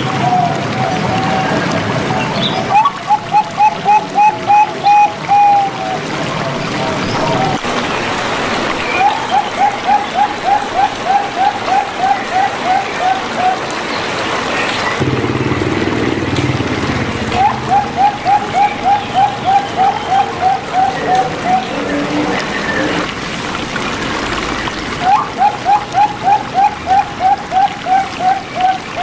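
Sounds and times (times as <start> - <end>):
dove cooing: 0.0 - 7.6, 9.0 - 13.8, 17.2 - 23.1, 25.0 - 29.0.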